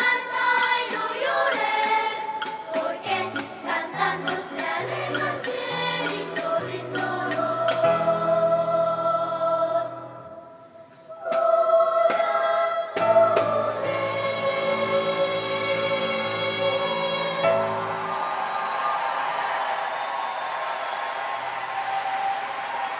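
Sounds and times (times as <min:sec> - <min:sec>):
bell-like percussion strikes: 0:00.0 - 0:07.9
instrumental accompaniment: 0:00.0 - 0:18.2
children's choir singing: 0:00.0 - 0:19.8.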